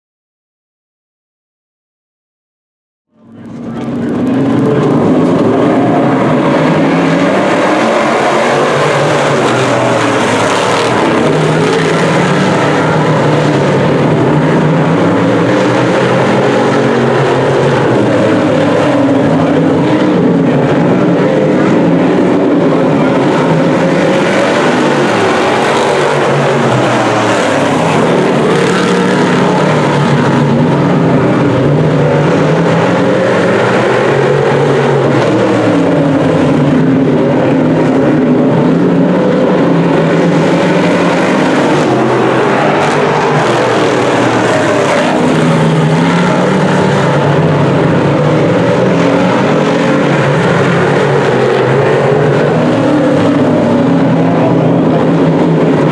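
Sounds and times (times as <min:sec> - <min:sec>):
race car engines racing: 0:03.1 - 0:55.9.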